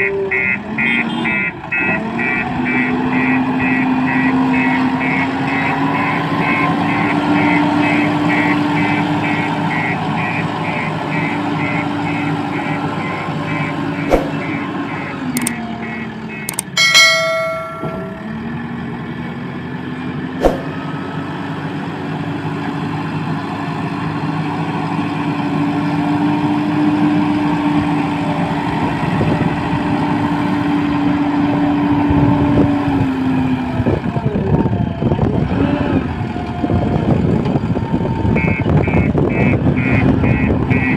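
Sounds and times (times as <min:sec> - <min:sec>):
heavy diesel engine running: 0:00.0 - 0:40.9
rapid warning beeps: 0:09.7 - 0:16.6.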